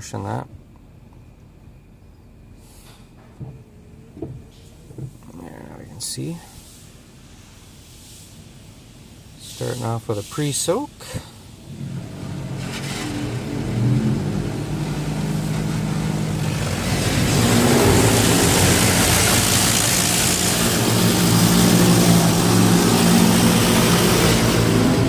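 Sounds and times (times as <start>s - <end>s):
water spray hissing: 9.4s - 10.8s, 11.4s - 25.0s
low machinery hum: 11.2s - 25.0s.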